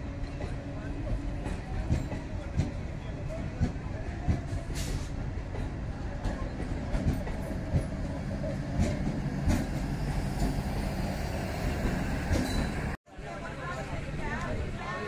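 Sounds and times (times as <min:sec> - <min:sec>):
wheels clacking over rail joints: 0:03.5 - 0:10.7, 0:11.8 - 0:13.0.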